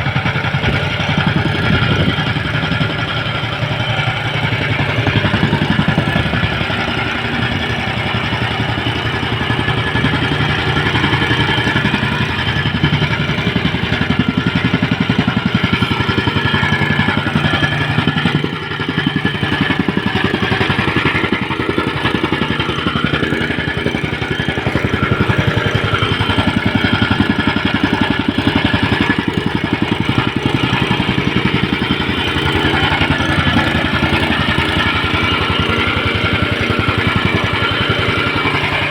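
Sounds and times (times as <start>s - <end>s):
small engine chugging: 0.0s - 38.9s.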